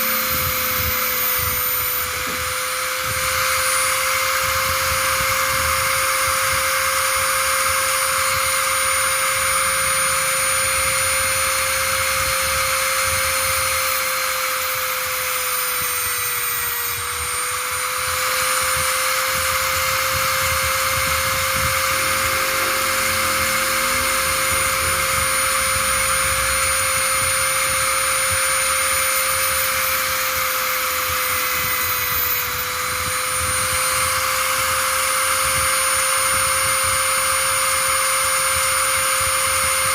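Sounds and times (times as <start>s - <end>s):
small electric motor whining: 0.0s - 39.9s.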